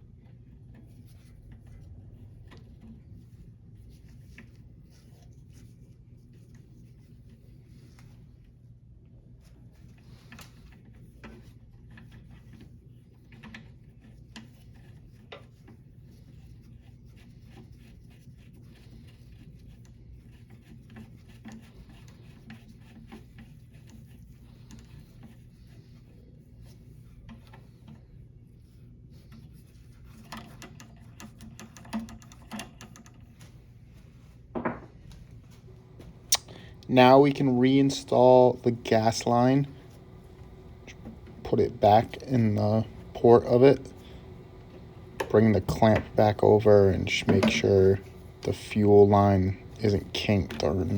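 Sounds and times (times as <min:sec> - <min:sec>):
steady low hum: 0:33.6 - 0:50.9.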